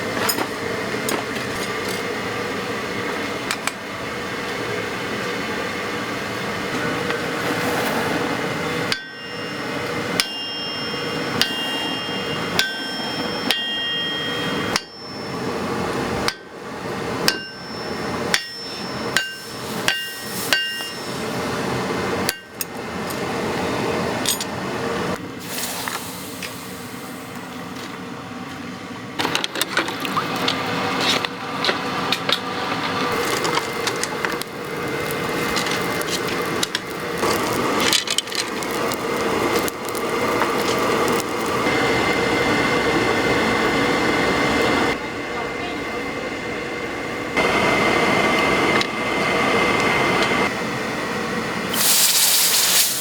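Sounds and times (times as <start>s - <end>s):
hammer striking steel on anvil: 8.8s - 21.5s, 22.3s - 22.7s.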